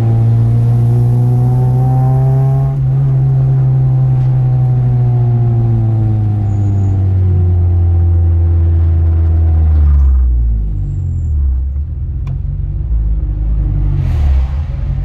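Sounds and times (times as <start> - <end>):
car engine from inside cabin: 0.0 - 14.2.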